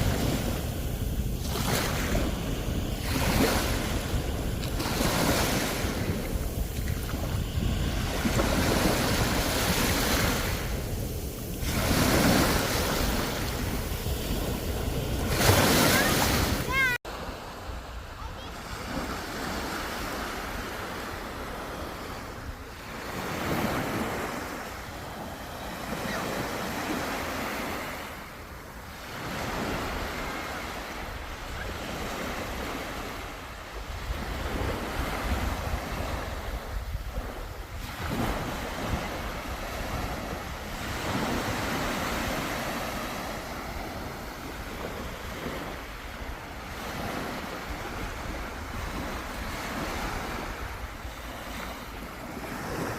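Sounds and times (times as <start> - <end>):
wind rumbling on microphone: 0.0 - 17.0
sea waves breaking on shore: 0.0 - 52.9.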